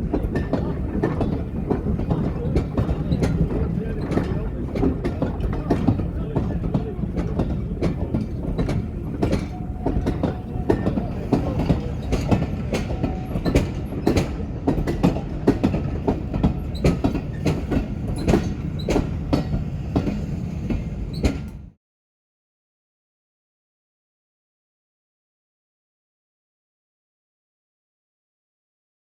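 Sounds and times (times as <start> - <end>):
wheels clicking over rail joints: 0.0 - 21.7
train rumbling on rails: 0.0 - 21.8.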